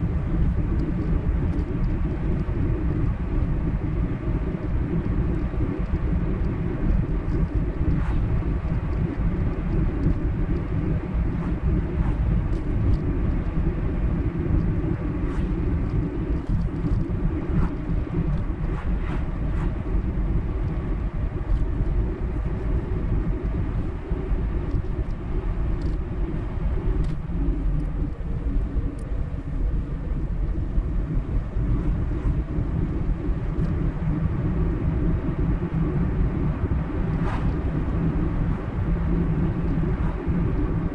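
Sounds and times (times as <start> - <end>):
car tyres and engine rumble: 0.0 - 40.9
faint small ticks: 25.8 - 26.0, 27.0 - 27.2.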